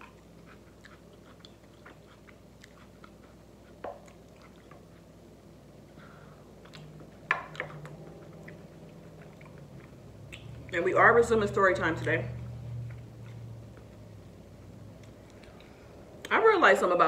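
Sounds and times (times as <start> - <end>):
close-up chewing: 0.0 - 5.5, 6.4 - 10.8.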